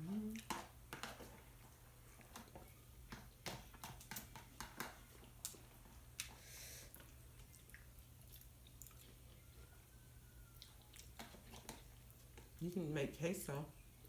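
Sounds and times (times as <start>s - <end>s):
person chewing: 0.0s - 12.6s
crunchy clicks and mouth noises: 3.4s - 9.4s, 10.5s - 12.6s.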